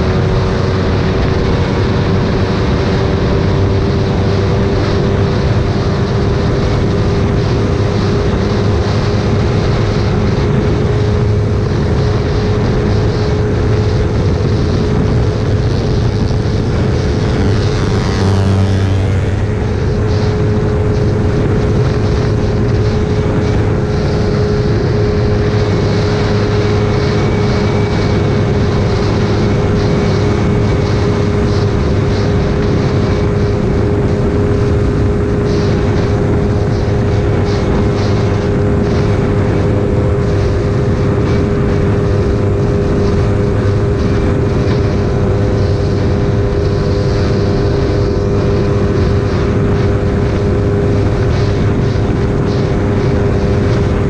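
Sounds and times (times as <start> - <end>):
motorcycle engine at high revs: 0.0 - 54.0
passing motorcycle engine: 0.0 - 54.0
wind rushing over microphone: 0.0 - 54.0.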